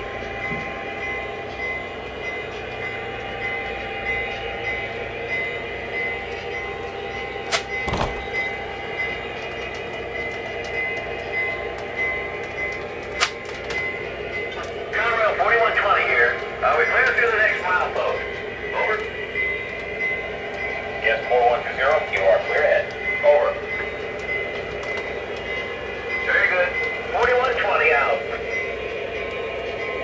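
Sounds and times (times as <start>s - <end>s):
model train running: 0.0s - 30.0s.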